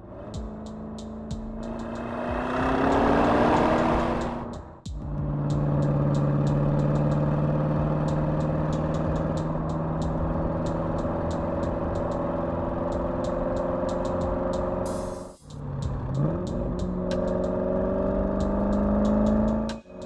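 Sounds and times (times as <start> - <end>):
car engine droning: 0.0 - 20.0
light irregular ticking: 4.2 - 17.6, 18.2 - 19.8.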